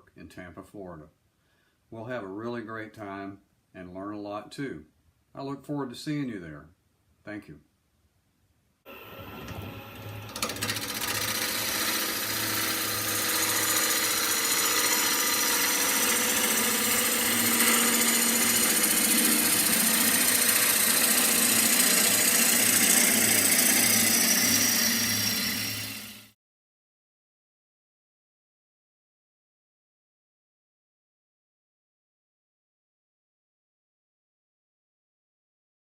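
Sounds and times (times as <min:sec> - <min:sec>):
lathe motor hum: 0:08.9 - 0:26.3
turning tool hissing cut on wood: 0:10.4 - 0:26.3.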